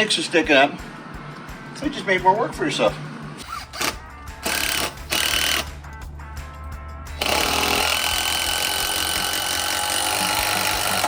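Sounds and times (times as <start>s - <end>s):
power drill driving screws: 3.4s - 5.7s, 7.2s - 11.0s.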